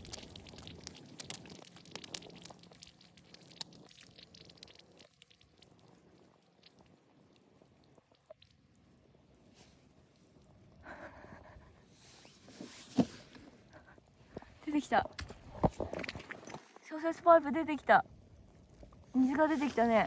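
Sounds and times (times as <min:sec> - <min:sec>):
water spurting and spattering: 0:00.0 - 0:06.9.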